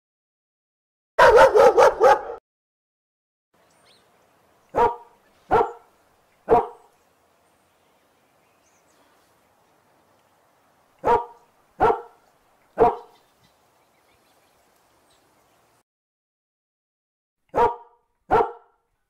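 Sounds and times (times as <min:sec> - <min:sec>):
dogs barking: 0:01.2 - 0:02.4, 0:04.7 - 0:05.9, 0:06.5 - 0:06.9, 0:11.0 - 0:12.2, 0:12.8 - 0:13.2, 0:17.5 - 0:18.8.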